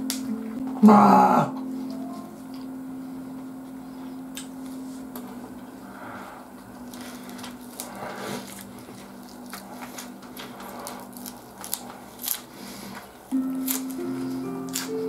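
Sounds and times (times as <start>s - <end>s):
music: 0.0s - 8.3s, 13.3s - 15.0s
steady low hum: 0.0s - 15.0s
crunching lettuce: 6.8s - 15.0s.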